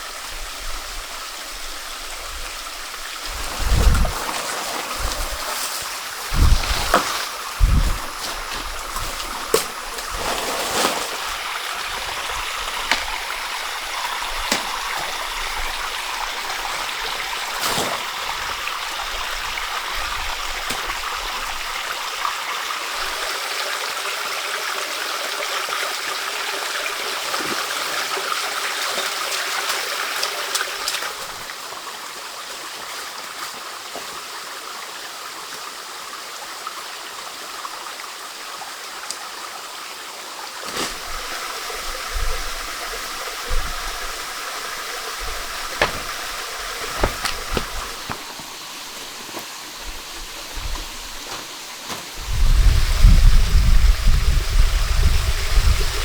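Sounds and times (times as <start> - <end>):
stream water flowing: 0.0 - 56.0
short knocks: 45.2 - 48.5.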